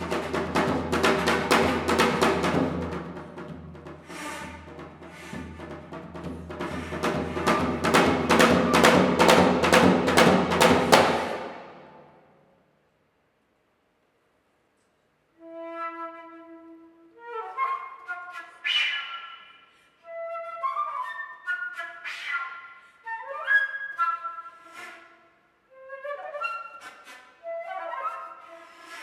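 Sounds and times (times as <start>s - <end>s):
solo flute playing: 15.3s - 29.0s.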